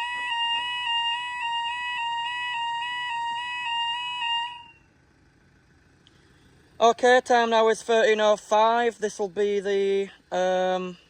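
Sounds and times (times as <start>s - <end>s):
level crossing alarm two-tone warble: 0.0s - 4.7s.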